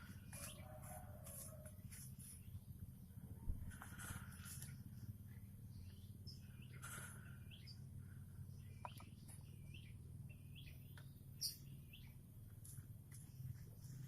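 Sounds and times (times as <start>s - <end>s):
bird chicks begging chirps: 0.0s - 1.3s, 4.0s - 12.3s.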